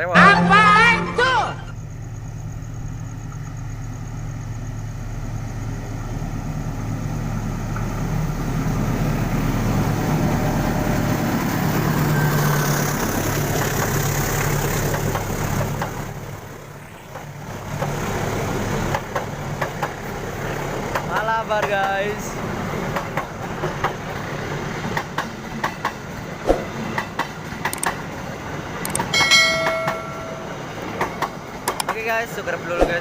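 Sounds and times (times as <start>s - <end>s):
train engine drone: 0.0s - 32.8s
train rumbling on rails: 0.0s - 33.0s
sharp clicks: 27.6s - 28.0s, 28.8s - 29.2s, 31.7s - 32.0s.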